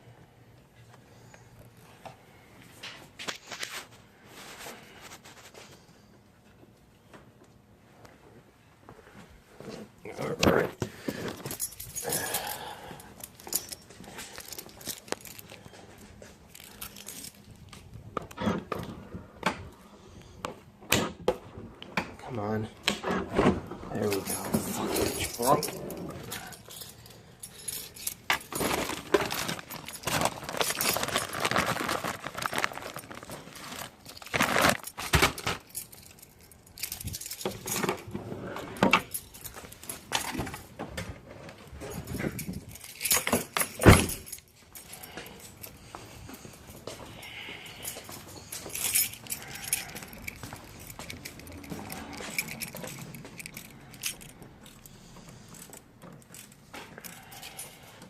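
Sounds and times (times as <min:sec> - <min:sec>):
metal tools clinking and scraping: 0:10.1 - 0:17.7, 0:23.9 - 0:40.7, 0:41.8 - 0:58.0.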